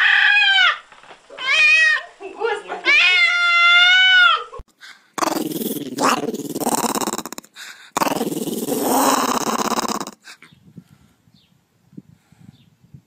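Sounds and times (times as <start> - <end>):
dog growling: 5.2 - 10.3.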